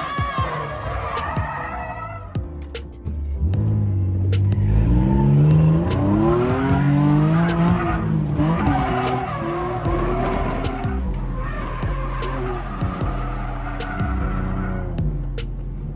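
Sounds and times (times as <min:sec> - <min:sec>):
tires squealing and skidding: 0:00.0 - 0:02.7, 0:04.0 - 0:15.8
car engine revving hard: 0:03.4 - 0:15.8.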